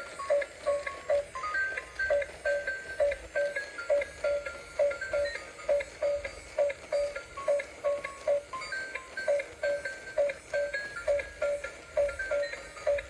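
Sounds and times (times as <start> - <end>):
light background music: 0.0 - 13.0.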